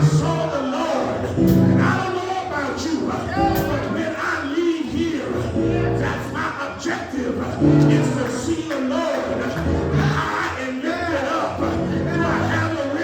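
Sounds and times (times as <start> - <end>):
voices singing: 0.0 - 13.0
held instrumental chords: 1.4 - 2.1, 3.4 - 4.0.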